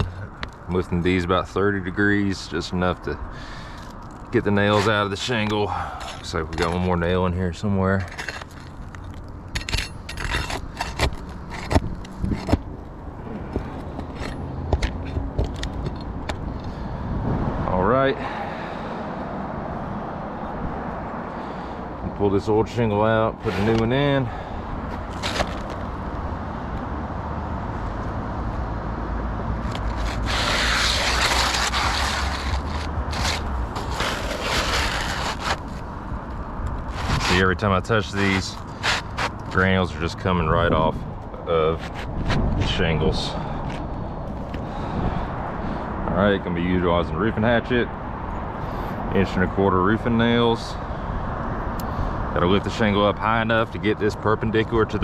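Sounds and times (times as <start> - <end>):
shingle scraping: 3.4 - 16.5, 23.1 - 24.2, 24.9 - 26.1, 29.6 - 35.9, 36.7 - 40.2, 41.6 - 42.6
pry bar clicking and scraping: 8.0 - 12.7.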